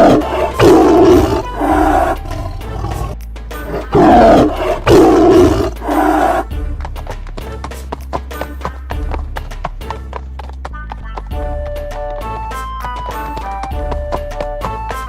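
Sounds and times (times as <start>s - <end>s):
cartoon animal roars: 0.0s - 6.5s
background music: 0.0s - 15.0s.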